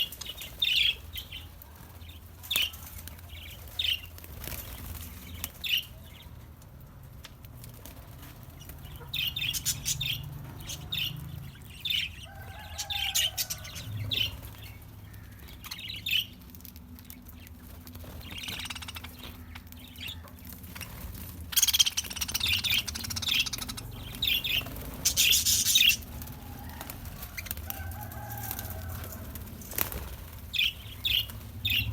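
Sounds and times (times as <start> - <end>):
small birds chirping: 0.0 - 31.9
wing flapping: 12.3 - 31.9.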